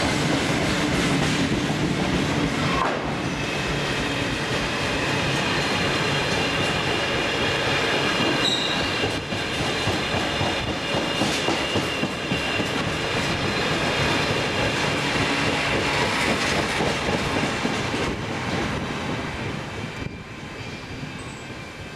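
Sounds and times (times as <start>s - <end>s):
train wheels rumbling on rail: 0.0s - 21.9s
high-pitched wheel squeal: 8.4s - 9.1s, 19.9s - 21.6s.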